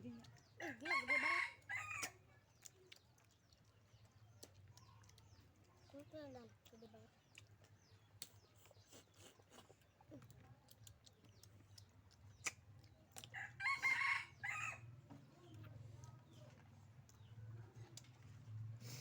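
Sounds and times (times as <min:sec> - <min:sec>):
rooster crowing: 0:00.8 - 0:02.1, 0:13.4 - 0:14.8
small clicks and taps: 0:15.1 - 0:18.3.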